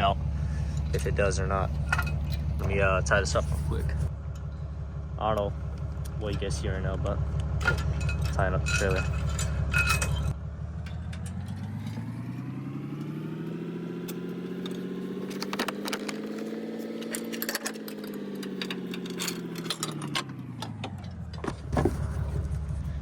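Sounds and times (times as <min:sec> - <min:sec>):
vehicle engine revving: 0:00.0 - 0:23.0
metallic clinks: 0:01.6 - 0:02.6, 0:07.6 - 0:11.6.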